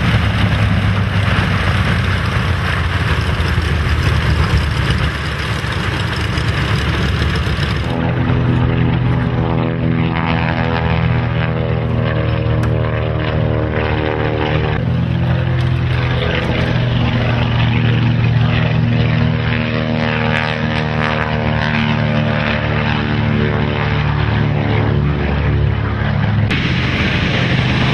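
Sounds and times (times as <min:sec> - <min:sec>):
propeller plane piston engine running: 0:00.0 - 0:27.9.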